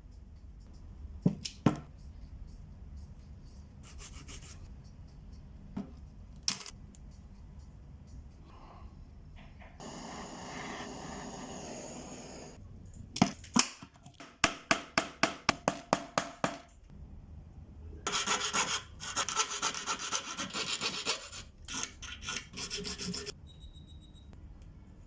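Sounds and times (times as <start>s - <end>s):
file rasping on copper: 18.1s - 23.4s.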